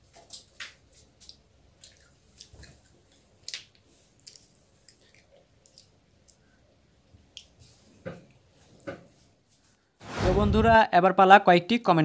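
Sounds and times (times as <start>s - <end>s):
crunching and chewing: 0.0s - 6.5s.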